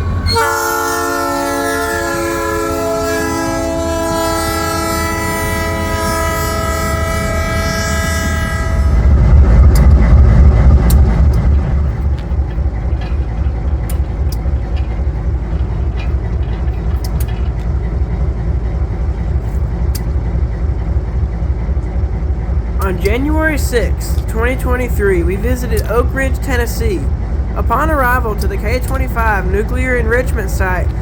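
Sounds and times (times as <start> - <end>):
locomotive air horn: 0.0 - 9.1
diesel engine rumbling: 0.0 - 31.0
faint clicks: 10.8 - 17.8.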